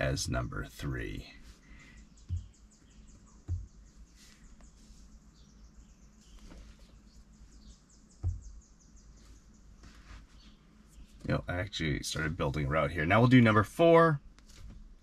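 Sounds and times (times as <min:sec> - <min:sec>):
birds chirping: 0:00.0 - 0:14.4
dull thumps: 0:02.2 - 0:04.7, 0:08.1 - 0:08.8.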